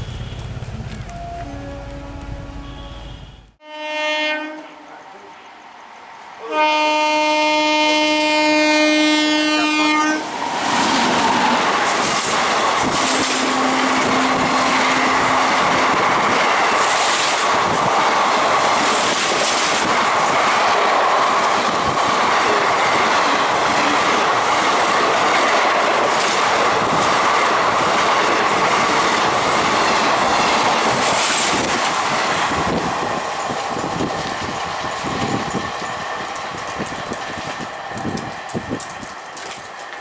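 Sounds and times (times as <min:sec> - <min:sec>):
train passing close by: 0:00.0 - 0:40.0
wheels clacking over rail joints: 0:10.5 - 0:40.0.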